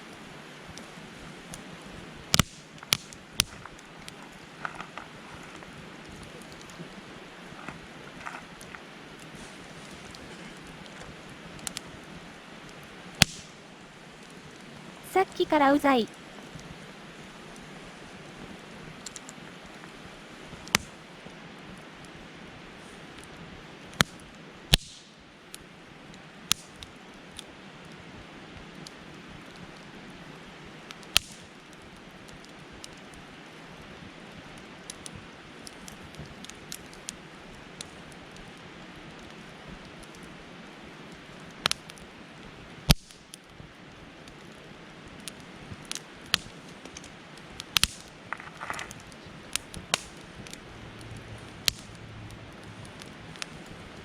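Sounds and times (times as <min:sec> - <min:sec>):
campfire crackling and popping: 0:34.5 - 0:54.0.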